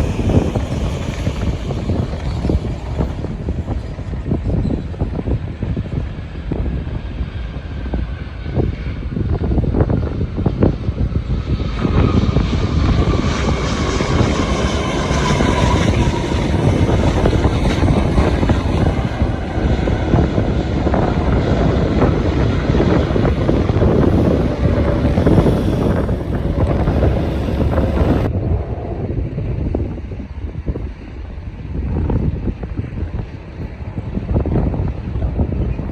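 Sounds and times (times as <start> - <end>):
jet airliner passing low: 0.0 - 35.9.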